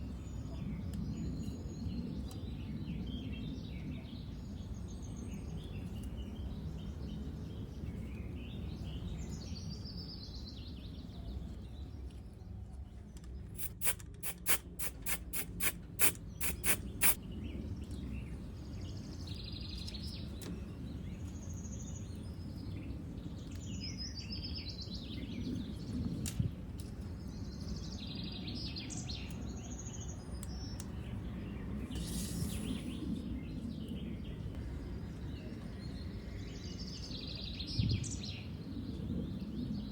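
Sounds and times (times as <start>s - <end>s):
birds chirping: 8.8s - 25.9s, 26.9s - 38.4s
sharp clicks: 13.2s - 17.2s.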